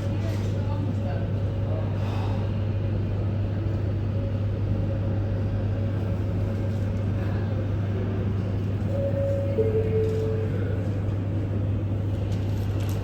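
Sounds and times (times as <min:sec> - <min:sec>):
low machine hum: 0:00.0 - 0:13.0
rushing background noise: 0:01.3 - 0:13.0
short tones: 0:08.9 - 0:10.8.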